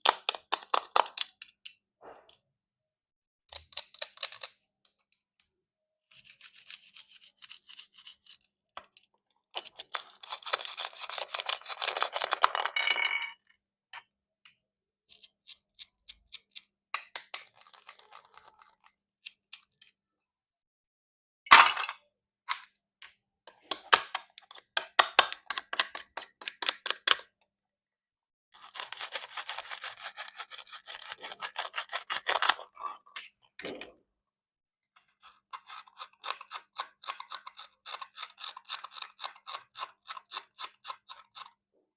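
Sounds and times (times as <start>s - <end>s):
knife cutting plastic crackling: 9.5s - 12.5s, 15.0s - 20.0s, 28.6s - 32.8s.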